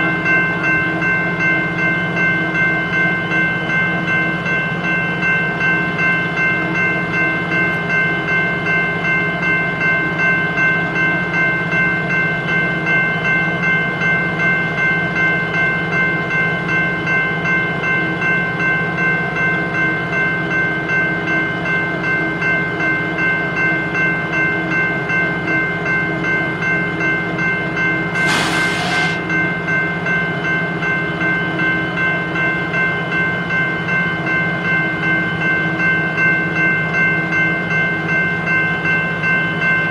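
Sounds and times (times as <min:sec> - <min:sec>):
freight train rolling by: 0:26.9 - 0:31.2
short hiss: 0:28.2 - 0:29.3.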